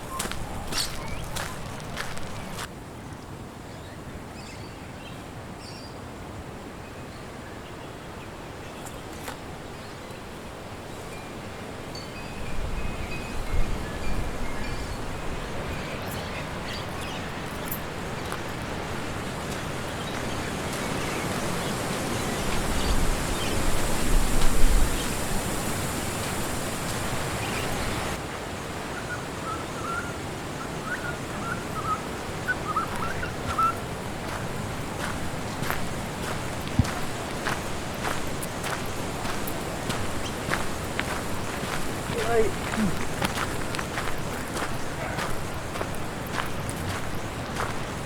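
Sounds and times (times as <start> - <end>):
small birds chirping: 0.0 - 2.7, 12.9 - 28.2, 29.0 - 48.0
wind rushing through trees: 0.0 - 48.0.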